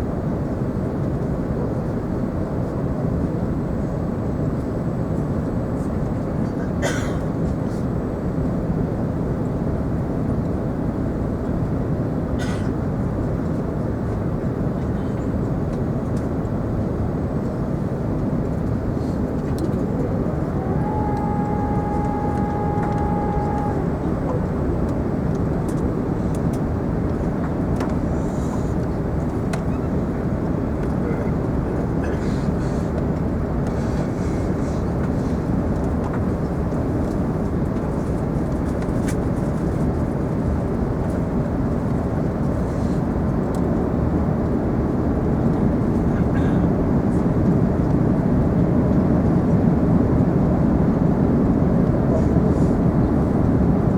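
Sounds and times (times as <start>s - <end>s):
airliner cabin rumble: 0.0s - 53.9s.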